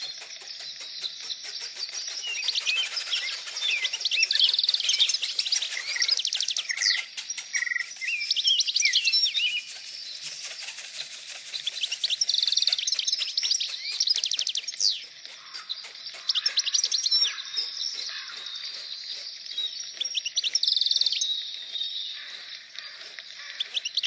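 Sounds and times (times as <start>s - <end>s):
birds chirping and trilling: 0.0s - 24.0s.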